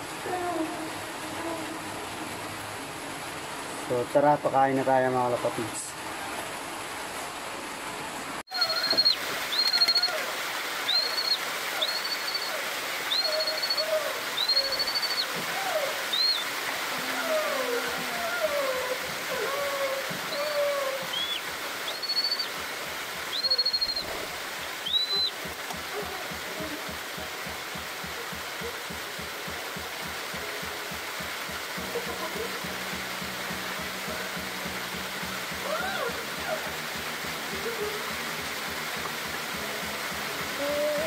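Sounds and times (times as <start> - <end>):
steady hiss: 0.0 - 41.0
bird whistling high notes: 8.5 - 10.2, 10.9 - 15.4, 16.1 - 16.5, 20.3 - 22.5, 23.3 - 24.2, 24.8 - 25.4
fainter lower falling bird calls: 8.5 - 16.8, 17.4 - 25.5.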